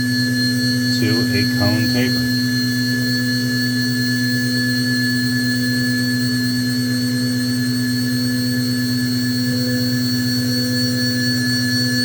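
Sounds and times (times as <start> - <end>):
machine hum with high whine: 0.6 - 3.0.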